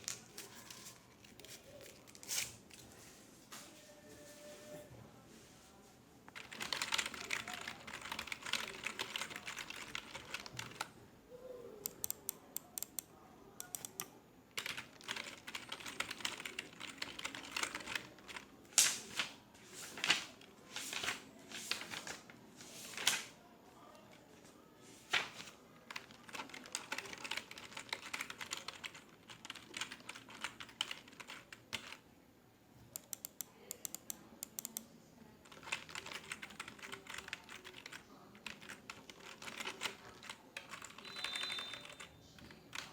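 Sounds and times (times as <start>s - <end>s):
computer keyboard typing: 6.3s - 10.9s, 11.8s - 18.5s, 25.4s - 32.0s, 32.9s - 34.8s, 35.4s - 42.9s.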